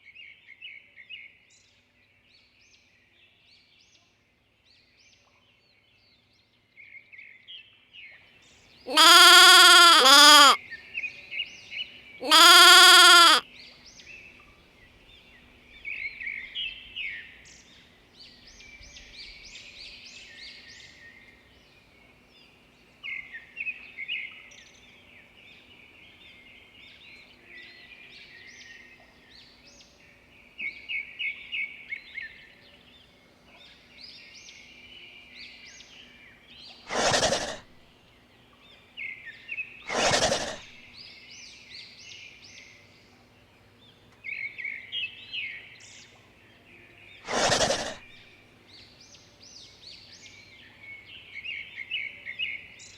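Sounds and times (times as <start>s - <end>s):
animal bleating: 8.9s - 10.6s, 12.2s - 13.4s, 47.3s - 48.1s
short burst of noise: 8.9s - 10.6s
small birds chirping: 8.9s - 10.6s, 12.2s - 13.4s.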